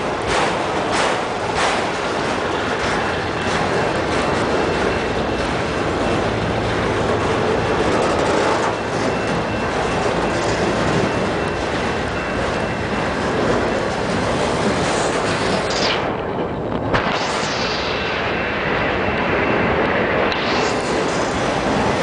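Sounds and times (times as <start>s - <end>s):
freight cars rolling on rails: 0.0s - 22.0s.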